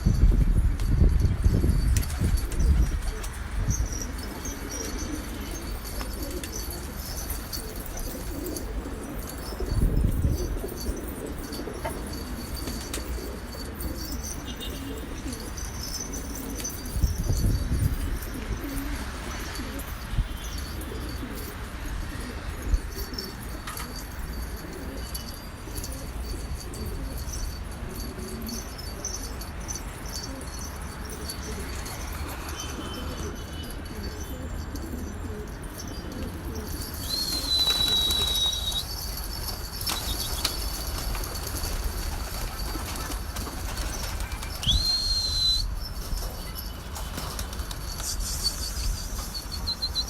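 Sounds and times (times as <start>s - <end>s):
pigeons cooing: 2.4s - 45.1s
short high whistles: 37.0s - 39.0s, 44.6s - 45.9s, 47.9s - 50.0s
wings flapping: 37.1s - 45.0s, 46.9s - 48.4s.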